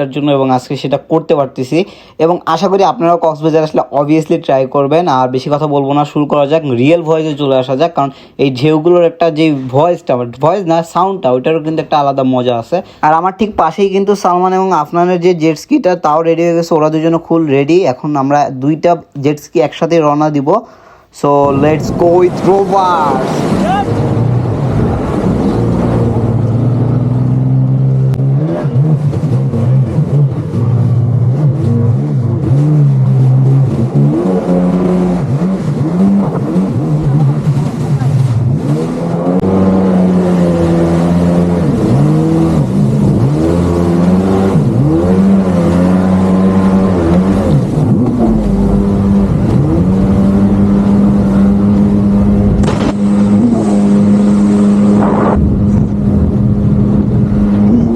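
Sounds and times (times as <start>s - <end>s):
jet ski engine revving: 21.4s - 57.9s.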